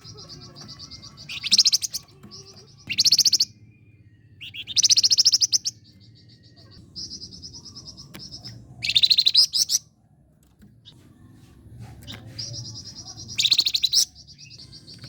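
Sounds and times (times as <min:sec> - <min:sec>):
songbird chattering and trilling: 0:00.0 - 0:10.0, 0:12.0 - 0:15.0.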